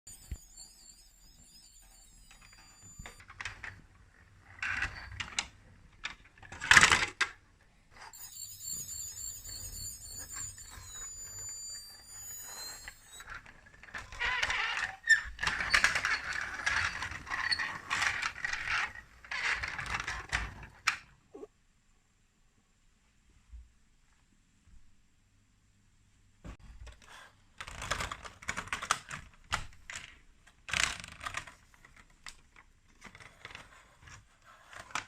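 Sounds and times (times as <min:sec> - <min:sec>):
high warbling electronic tone: 0:00.1 - 0:03.2, 0:08.2 - 0:13.2
plastic toy parts clicking: 0:27.6 - 0:33.7.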